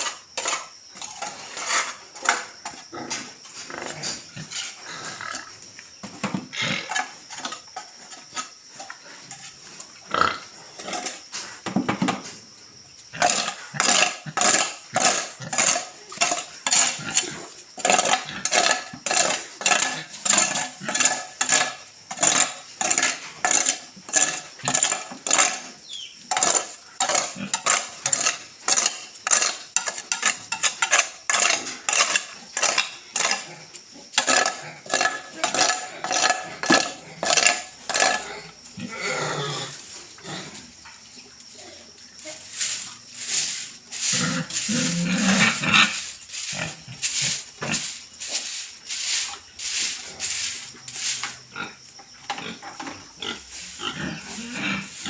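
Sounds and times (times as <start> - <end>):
scraping strokes on floor: 0.0 - 5.4, 42.2 - 51.8, 52.4 - 55.0.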